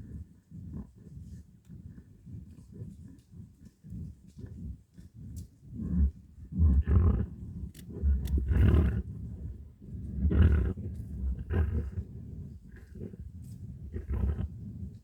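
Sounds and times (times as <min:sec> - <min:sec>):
animals growling and snarling: 0:06.8 - 0:09.2, 0:10.2 - 0:12.1, 0:13.9 - 0:14.5.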